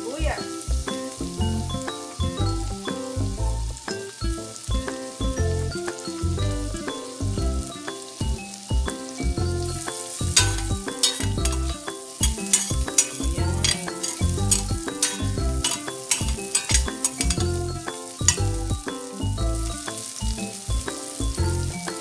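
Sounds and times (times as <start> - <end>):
vegetables sizzling in a pan: 0.0 - 22.0
music with pulsing bass: 0.7 - 3.8, 4.7 - 11.8, 12.7 - 15.6, 17.3 - 19.8, 20.7 - 21.9
spatula stirring: 9.8 - 20.3.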